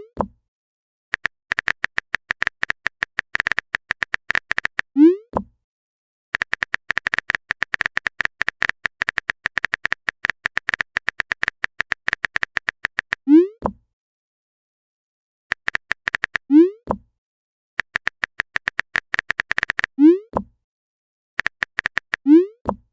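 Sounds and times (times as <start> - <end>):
rapid keyboard clicks: 1.1 - 4.9, 6.4 - 13.2, 15.5 - 16.4, 17.8 - 19.9, 21.4 - 22.2.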